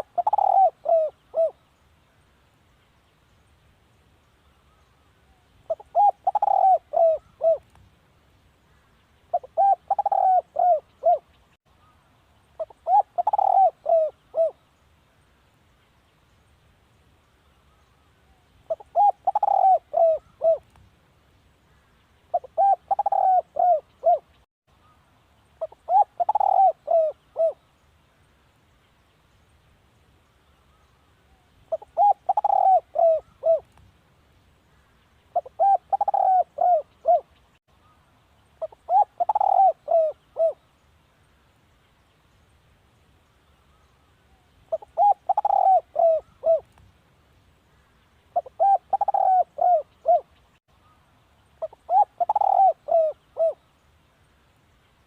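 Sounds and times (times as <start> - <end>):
dove cooing: 0.0 - 1.6, 5.7 - 7.7, 9.3 - 11.3, 12.6 - 14.6, 18.7 - 20.7, 22.3 - 24.4, 25.6 - 27.6, 31.7 - 33.7, 35.4 - 37.3, 38.6 - 40.6, 44.7 - 46.7, 48.4 - 50.3, 51.6 - 53.6.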